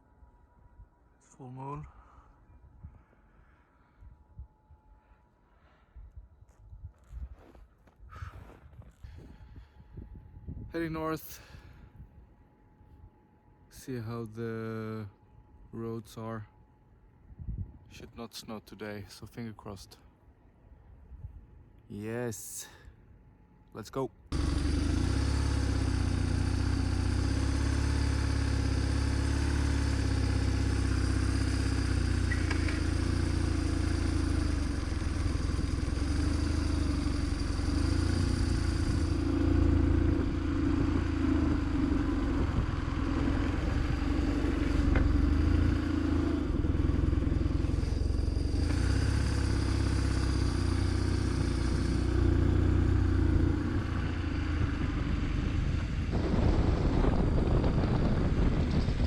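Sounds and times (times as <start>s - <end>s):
motorcycle engine running: 24.3s - 59.0s.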